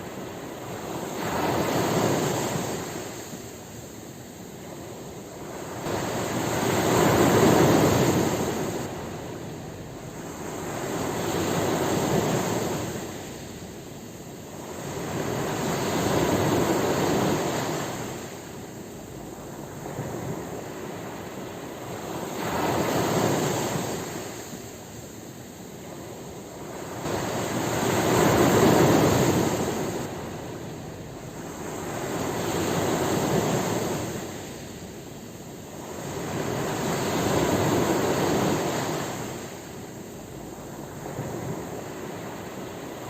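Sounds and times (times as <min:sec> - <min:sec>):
ocean waves breaking: 0:00.0 - 0:43.0.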